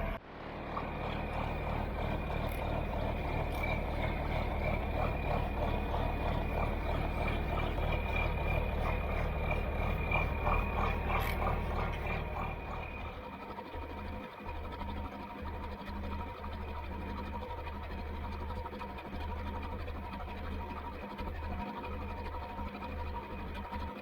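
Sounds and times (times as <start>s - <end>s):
high-pitched whine: 0.0s - 13.2s
tractor engine running: 0.0s - 24.0s.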